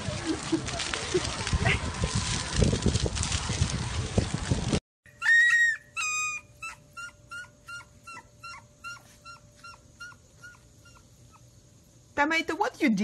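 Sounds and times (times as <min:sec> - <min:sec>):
puppy crying and whimpering: 0:05.1 - 0:11.4.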